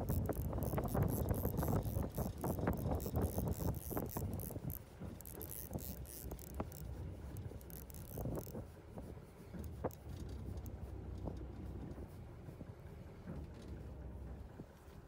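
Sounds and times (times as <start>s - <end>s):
sharp clicks and knocks: 0.0s - 8.7s, 9.6s - 12.1s
boat engine rumble: 0.0s - 15.0s.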